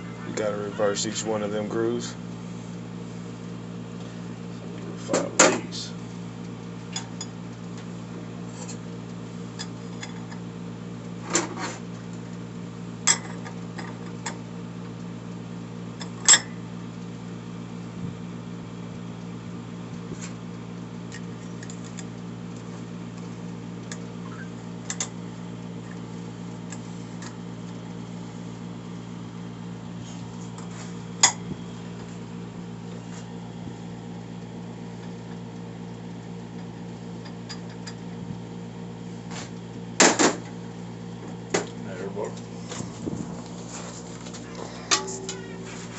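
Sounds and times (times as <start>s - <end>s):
electrical hum: 0.0s - 45.9s.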